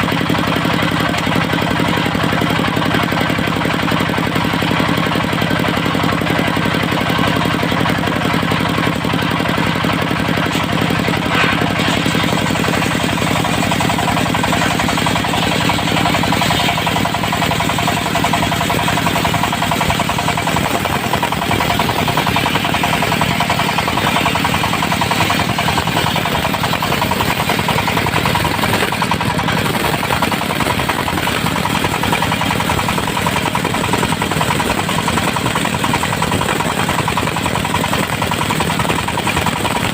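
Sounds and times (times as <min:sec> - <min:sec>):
diesel sawmill running: 0:00.0 - 0:39.9.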